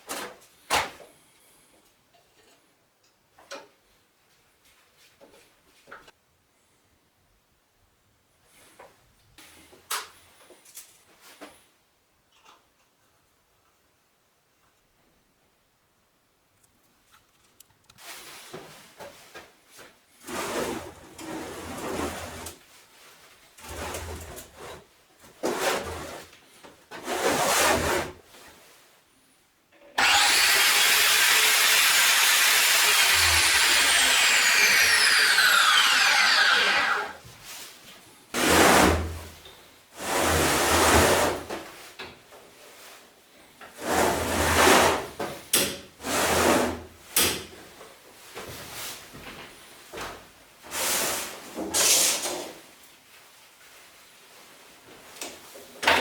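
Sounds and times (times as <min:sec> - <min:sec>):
angle grinder cutting metal: 0:30.0 - 0:37.2.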